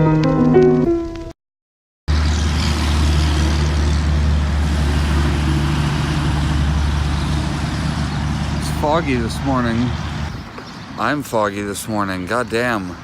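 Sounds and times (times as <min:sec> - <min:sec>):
car engine and road drone: 0:02.1 - 0:10.6.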